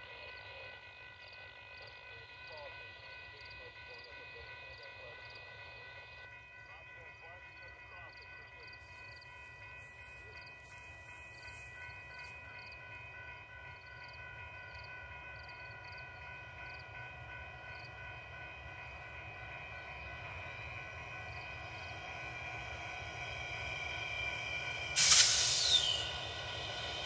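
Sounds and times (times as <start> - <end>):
diesel locomotive rumble: 20.6 - 27.0.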